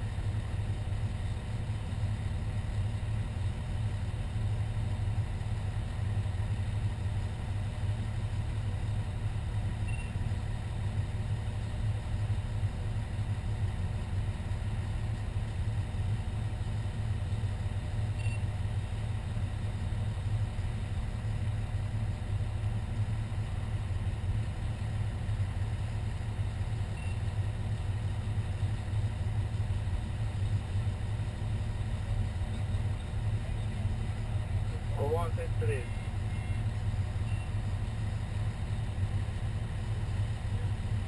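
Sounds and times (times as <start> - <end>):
diesel engine rumbling: 0.0 - 41.0
faint short beeps: 9.8 - 10.2, 18.2 - 18.5, 27.0 - 27.2, 35.9 - 37.6.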